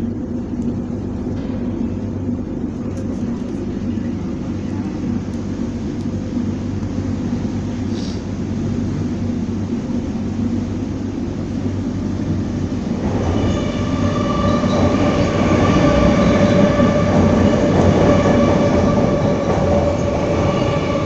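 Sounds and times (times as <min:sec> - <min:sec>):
train rumbling over bridge: 0:00.0 - 0:21.0.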